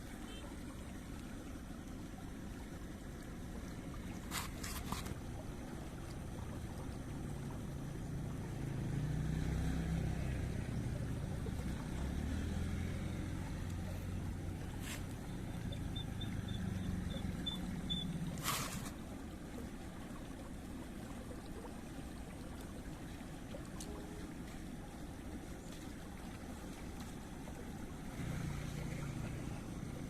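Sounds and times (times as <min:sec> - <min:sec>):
small engine droning: 0:00.0 - 0:19.0, 0:26.4 - 0:30.0.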